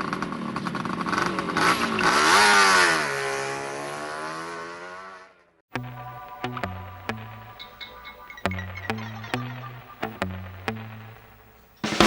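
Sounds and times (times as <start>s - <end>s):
small motorcycle engine running: 0.0s - 5.2s.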